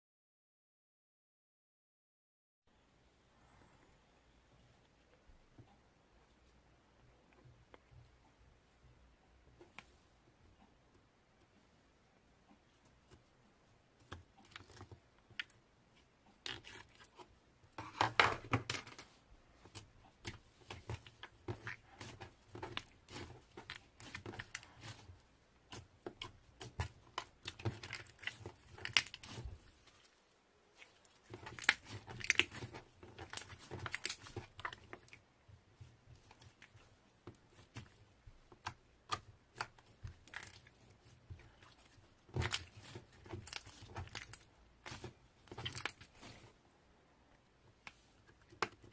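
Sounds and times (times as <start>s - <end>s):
slime squishing and crackling: 19.7s - 30.2s, 30.8s - 35.2s, 35.8s - 46.5s.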